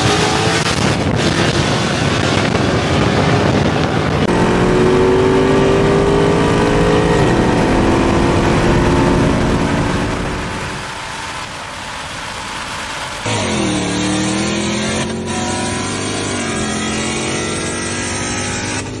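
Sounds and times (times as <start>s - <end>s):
racing car engine accelerating: 4.0s - 12.4s, 13.1s - 19.0s.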